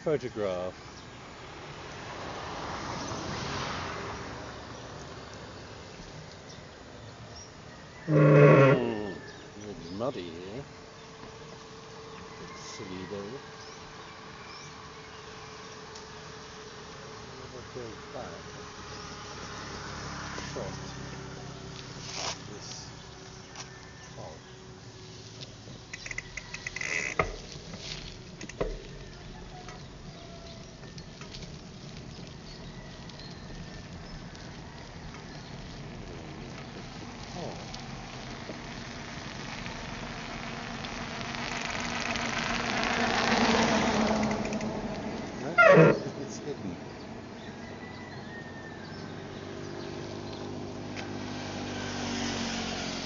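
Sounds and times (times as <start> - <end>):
bicycle rattling over rough road: 0.0 - 53.0
vehicle passing by: 0.0 - 53.0.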